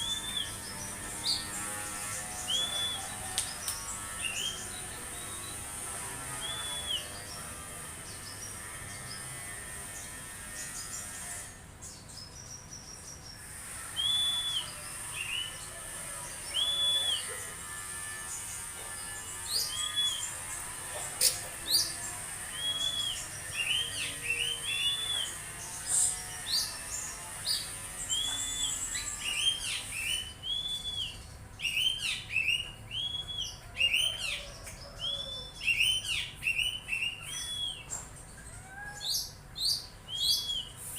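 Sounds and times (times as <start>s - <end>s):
bird singing whistled notes: 0.0s - 0.8s, 2.5s - 3.2s, 6.4s - 7.3s, 13.9s - 15.5s, 16.5s - 17.3s, 22.5s - 25.4s, 28.1s - 34.2s, 35.2s - 37.9s, 39.7s - 40.8s
bird chirps: 0.0s - 9.3s, 19.1s - 40.9s.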